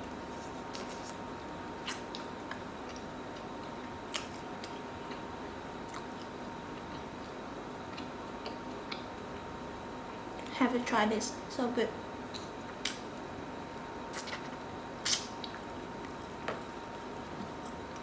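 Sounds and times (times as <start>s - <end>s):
faint hum: 0.0s - 18.0s
person chewing and eating: 1.8s - 9.5s, 14.1s - 18.0s.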